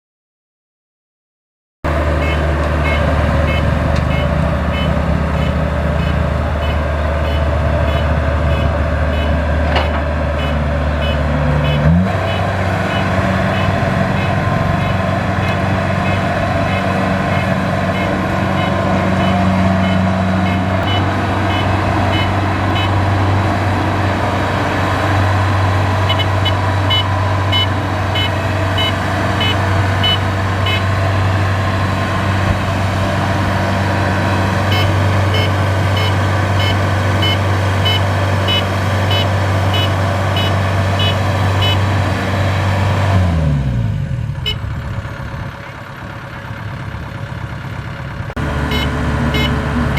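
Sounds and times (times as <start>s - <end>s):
diesel harvester engine running: 1.9s - 49.9s
high warning beeper: 10.4s - 23.0s, 26.0s - 31.0s, 34.6s - 41.8s, 48.7s - 49.6s.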